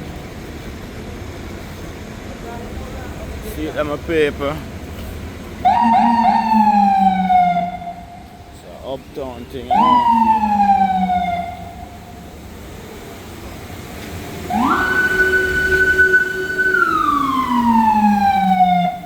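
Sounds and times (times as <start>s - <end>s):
emergency siren wailing: 5.6s - 8.6s, 9.4s - 12.5s, 14.3s - 19.0s.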